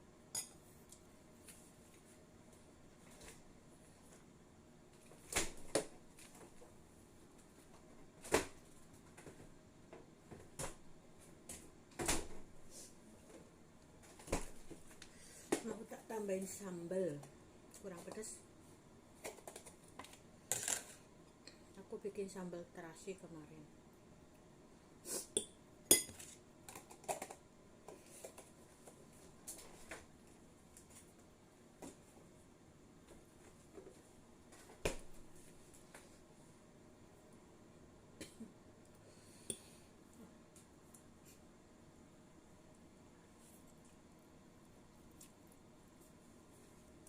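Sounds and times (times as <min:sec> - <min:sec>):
spoon clinking against dishes: 0:25.4 - 0:26.2.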